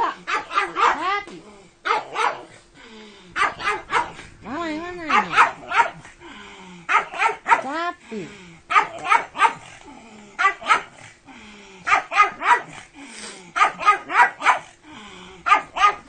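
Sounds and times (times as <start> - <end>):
dog barking: 0.0 - 1.2, 1.8 - 2.5, 3.4 - 4.2, 5.0 - 6.1, 6.9 - 7.7, 8.7 - 9.7, 10.4 - 11.0, 11.9 - 12.8, 13.6 - 14.7, 15.4 - 16.0.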